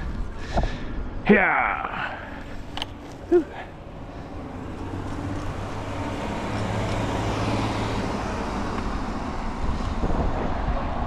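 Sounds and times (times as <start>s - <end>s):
wind rushing over microphone: 0.0s - 11.0s
tyre noise: 1.7s - 8.0s
electric bike motor hum: 2.4s - 9.9s.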